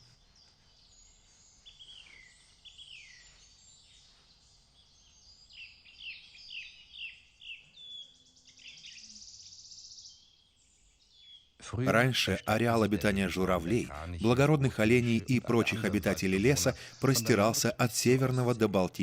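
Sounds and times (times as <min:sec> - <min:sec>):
faint songbirds chirping: 0:00.0 - 0:19.0
dry buzzy bird trill: 0:11.3 - 0:19.0.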